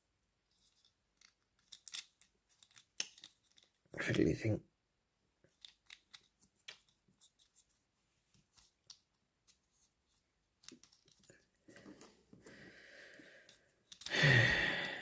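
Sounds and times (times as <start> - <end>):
small plastic parts clicking: 0.5 - 3.9, 5.4 - 7.7, 8.3 - 9.9, 10.6 - 12.2, 13.1 - 14.2.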